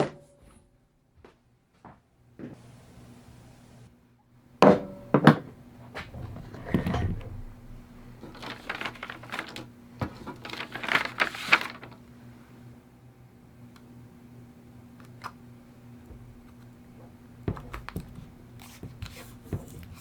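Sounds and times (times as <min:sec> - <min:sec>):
low hum: 0:06.0 - 0:09.1.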